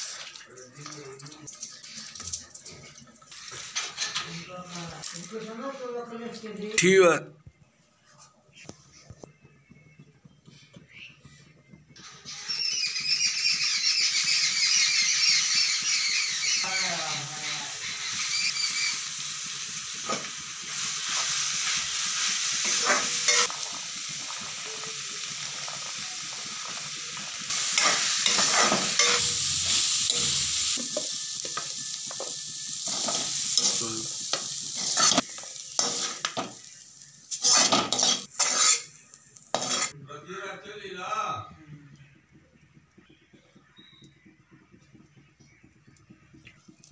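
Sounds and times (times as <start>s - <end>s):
vegetables sizzling in hot oil: 0.0s - 0.4s, 1.6s - 5.9s, 12.0s - 40.0s
metal spatula scraping pan: 1.6s - 4.4s, 22.6s - 23.6s, 27.5s - 29.4s, 32.8s - 36.6s, 37.3s - 40.0s.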